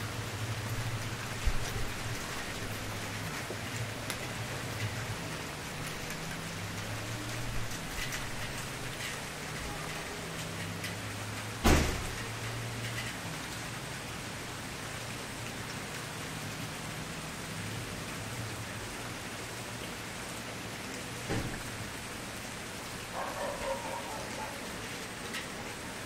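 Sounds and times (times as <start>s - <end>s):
wood fire crackling: 0.3s - 11.0s
loud sharp pop: 11.6s - 12.0s.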